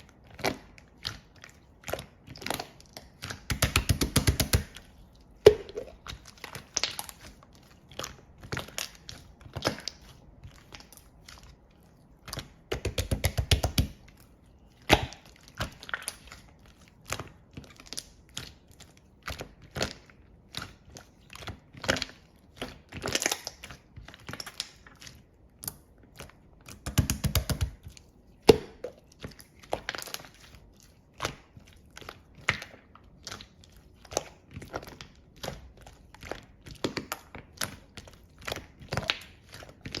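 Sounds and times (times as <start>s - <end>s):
slime squished by hand: 0.0s - 40.0s
slime rapid crackling: 0.4s - 25.2s.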